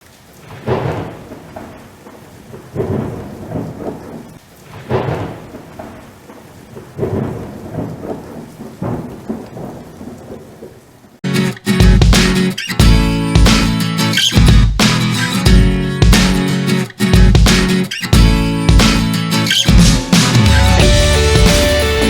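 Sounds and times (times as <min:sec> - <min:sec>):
beam engine strokes rumbling: 0:19.7 - 0:22.0.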